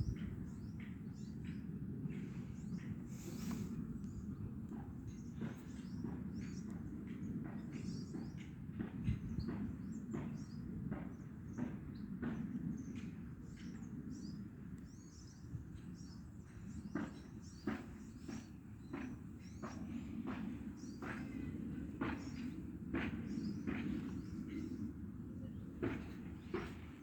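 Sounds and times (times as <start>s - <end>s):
small birds chirping: 0.0s - 12.1s, 12.8s - 27.0s.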